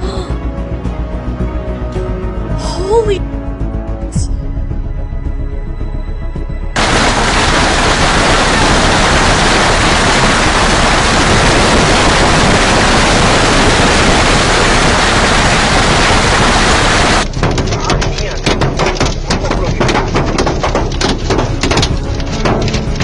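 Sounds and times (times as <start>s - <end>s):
loud steady rushing noise: 6.8s - 23.0s.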